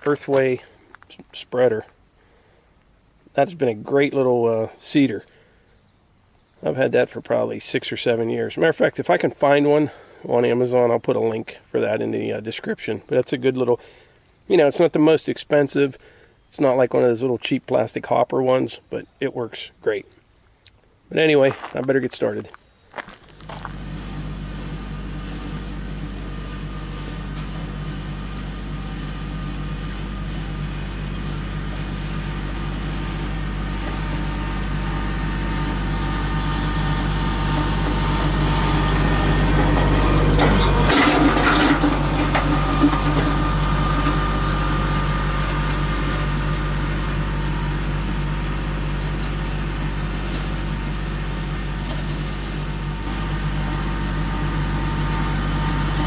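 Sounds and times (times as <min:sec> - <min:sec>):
tractor diesel engine running: 0:00.0 - 0:01.8, 0:03.3 - 0:05.4, 0:21.4 - 0:56.0.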